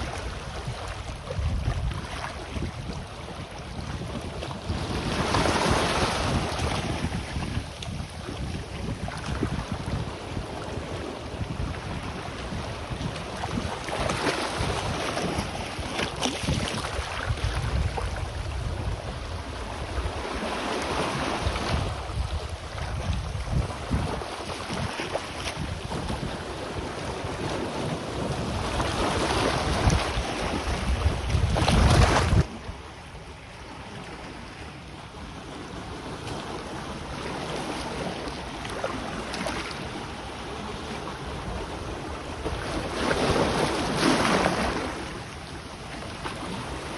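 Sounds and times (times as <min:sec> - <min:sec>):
wind buffeting microphone: 0:00.0 - 0:34.4
sea waves washing on shore: 0:00.0 - 0:46.9.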